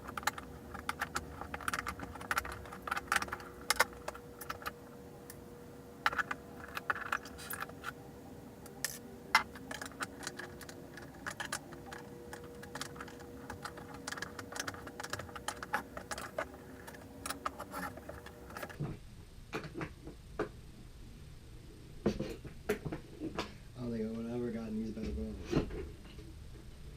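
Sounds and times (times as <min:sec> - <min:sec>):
metal hardware clinking and clicking: 0:00.0 - 0:04.8, 0:08.7 - 0:18.8.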